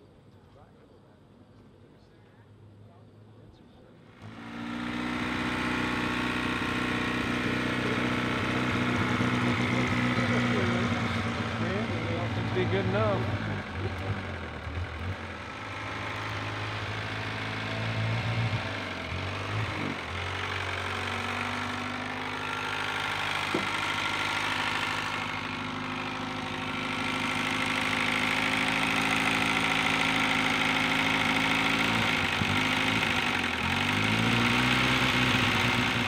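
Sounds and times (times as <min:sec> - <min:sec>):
small car engine idling: 0:04.0 - 0:36.0.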